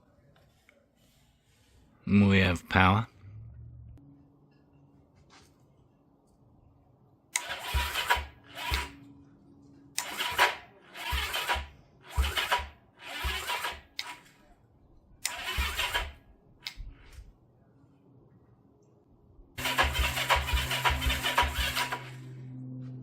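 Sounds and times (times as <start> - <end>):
electric starter cranking engine: 7.3 - 9.0, 10.0 - 14.3, 15.2 - 16.2, 19.6 - 22.4.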